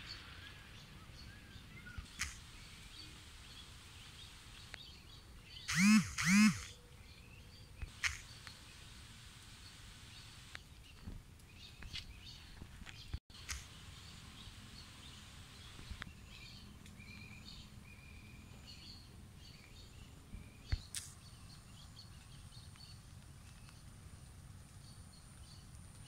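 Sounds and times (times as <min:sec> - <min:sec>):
short bird chirps: 0:01.3 - 0:08.6
low steady outdoor rumble: 0:06.6 - 0:26.0.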